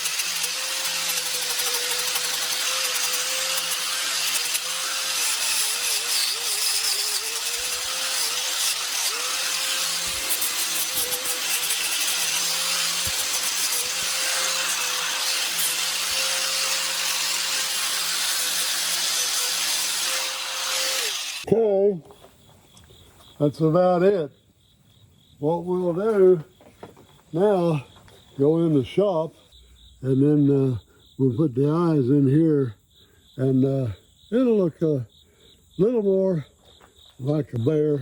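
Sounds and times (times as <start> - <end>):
electric grinder sanding wood: 0.0 - 21.5.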